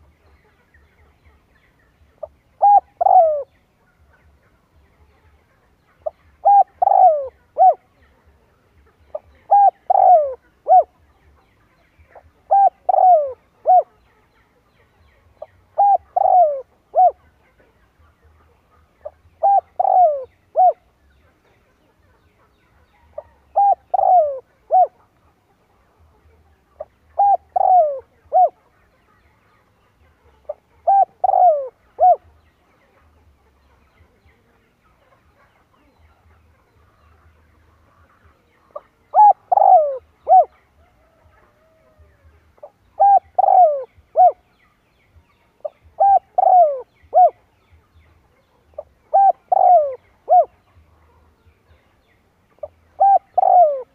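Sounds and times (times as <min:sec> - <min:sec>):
dove cooing: 0:02.2 - 0:03.5, 0:06.0 - 0:08.1, 0:09.1 - 0:11.0, 0:12.1 - 0:14.0, 0:15.4 - 0:17.6, 0:19.0 - 0:21.0, 0:23.0 - 0:25.2, 0:27.1 - 0:28.7, 0:30.4 - 0:32.3, 0:38.7 - 0:44.4, 0:45.6 - 0:47.5, 0:48.8 - 0:50.6, 0:52.6 - 0:53.9.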